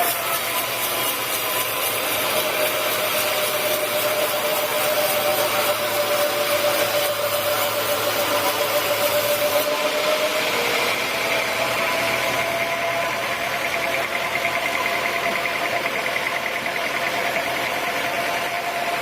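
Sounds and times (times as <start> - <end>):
hiss of saw cutting wood: 0.0 - 13.7
saw whine: 0.0 - 19.0.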